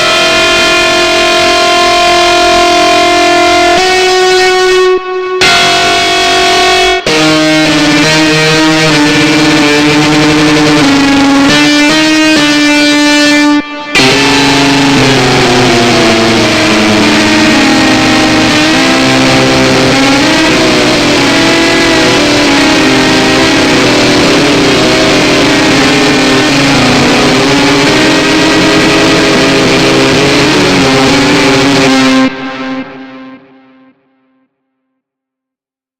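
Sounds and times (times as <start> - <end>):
harsh distorted noise music: 0.0 - 33.5.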